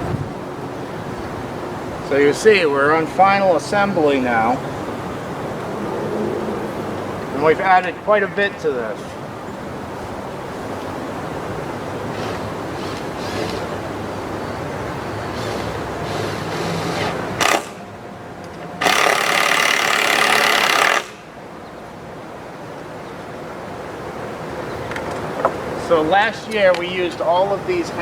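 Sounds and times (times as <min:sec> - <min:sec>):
wind noise: 0:00.0 - 0:17.5
power drill driving a screw: 0:12.1 - 0:13.8, 0:15.3 - 0:17.9, 0:18.8 - 0:21.2.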